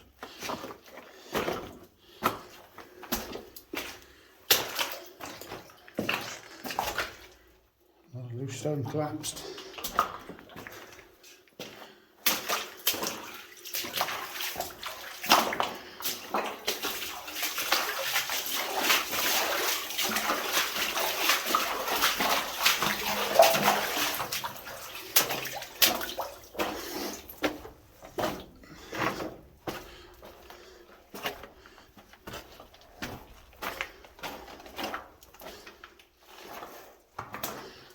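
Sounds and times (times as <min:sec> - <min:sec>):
water sloshing from wading: 0:09.3 - 0:37.9.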